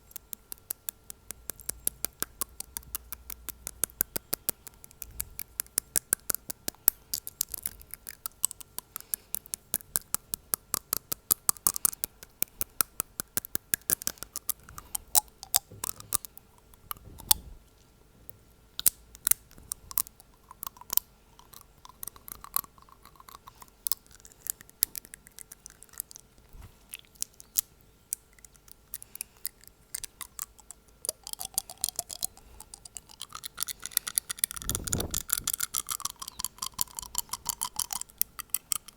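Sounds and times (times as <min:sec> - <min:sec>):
fingernail tapping on teeth: 0:00.0 - 0:17.5, 0:28.4 - 0:38.9.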